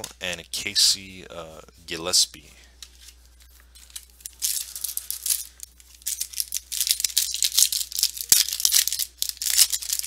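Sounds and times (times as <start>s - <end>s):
stiff cards being handled: 2.8s - 10.0s
foil wrappers crinkling: 3.0s - 10.0s.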